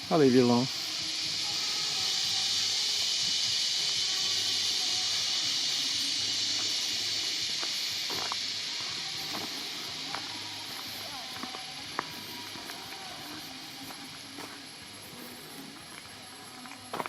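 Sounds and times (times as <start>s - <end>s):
high-pitched hiss: 0.0s - 17.0s.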